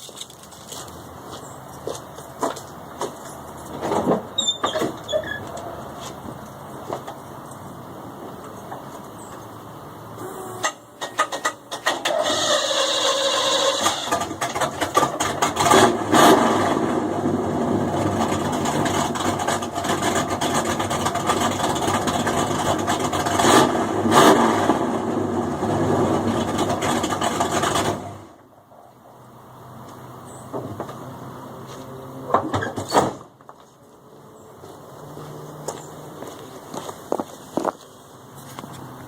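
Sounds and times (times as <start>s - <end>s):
loud car engine revving: 11.6s - 28.4s.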